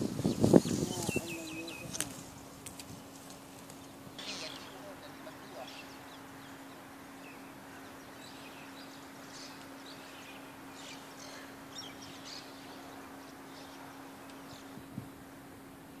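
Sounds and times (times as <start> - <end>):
birds chirping: 0.0 - 16.0
steady background hiss: 0.0 - 16.0.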